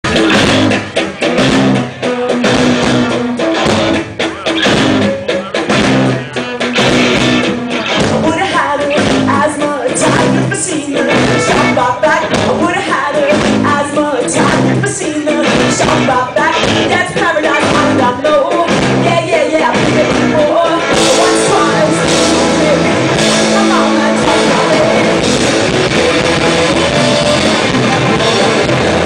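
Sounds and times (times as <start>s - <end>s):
rock band playing live: 0.0s - 29.0s.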